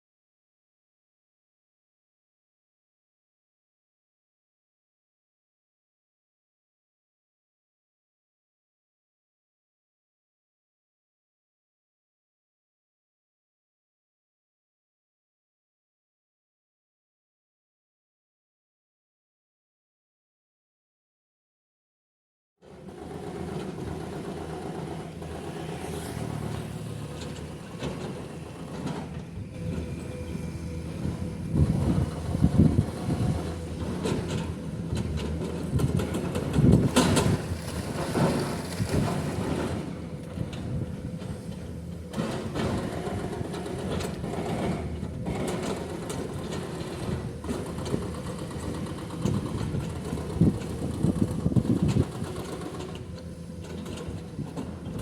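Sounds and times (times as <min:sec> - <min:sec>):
excavator diesel engine running: 0:22.7 - 0:55.0
hydraulic breaker hammering rock: 0:31.5 - 0:41.4.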